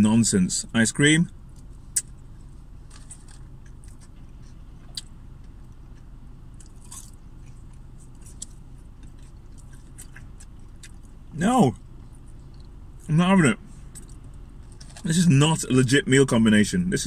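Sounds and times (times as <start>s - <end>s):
steady low hum: 0.0s - 17.0s
person chewing: 1.5s - 13.1s, 13.8s - 15.1s.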